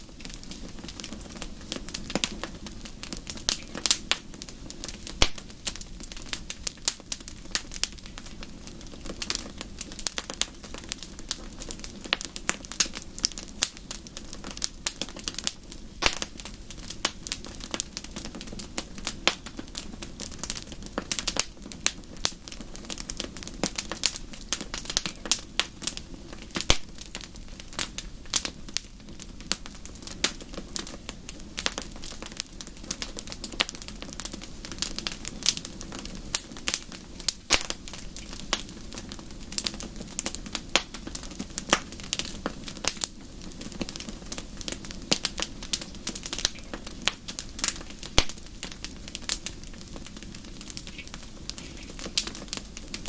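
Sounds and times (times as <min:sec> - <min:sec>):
fire crackling and popping: 0:00.0 - 0:53.0
low rumble of flames: 0:00.0 - 0:53.0.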